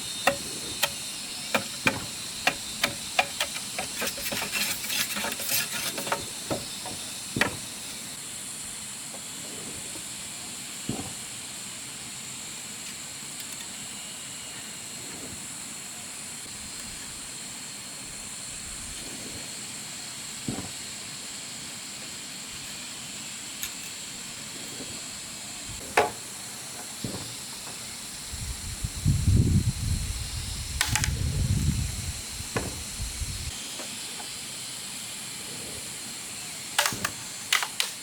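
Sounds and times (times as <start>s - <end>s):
high-pitched insect chorus: 0.0s - 38.0s
scattered knocks: 0.2s - 7.6s.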